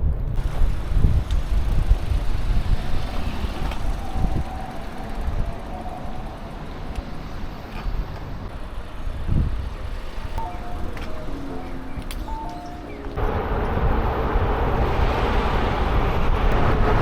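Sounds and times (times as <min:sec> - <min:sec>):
low rumble of passing traffic: 0:00.0 - 0:17.0
wind buffeting microphone: 0:00.0 - 0:17.0.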